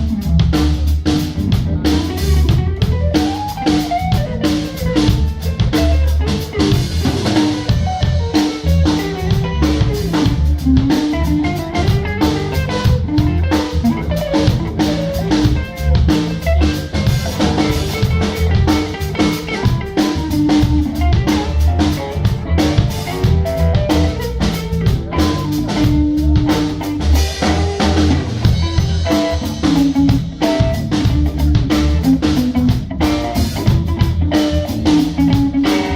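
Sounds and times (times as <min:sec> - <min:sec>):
bass: 0:00.0 - 0:35.9
drum kit beat: 0:00.0 - 0:35.9
guitar playing: 0:00.0 - 0:35.9.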